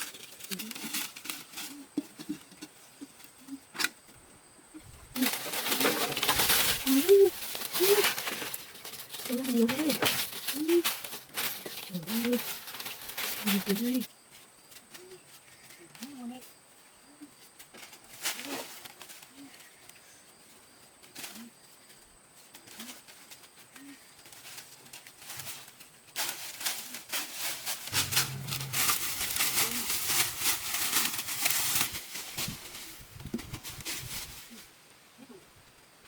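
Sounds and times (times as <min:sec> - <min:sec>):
loud crackling rustling: 0:04.9 - 0:14.1, 0:27.8 - 0:34.6
low bird calls: 0:27.9 - 0:30.5.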